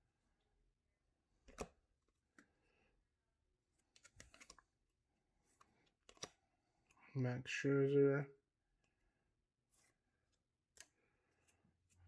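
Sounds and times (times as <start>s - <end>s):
cards clicking and tapping: 1.5s - 1.8s, 4.0s - 4.6s, 5.7s - 6.4s.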